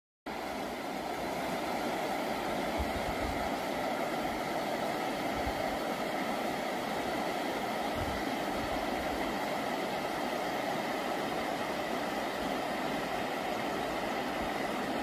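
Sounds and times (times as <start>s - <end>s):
river water rushing: 0.3s - 15.0s.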